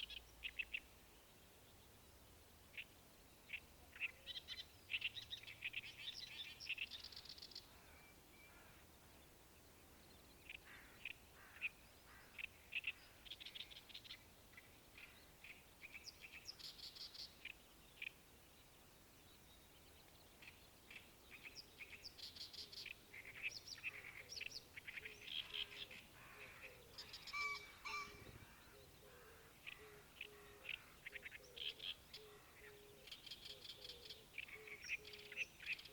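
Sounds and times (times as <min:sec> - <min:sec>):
wild birds chirping: 0:00.0 - 0:35.9.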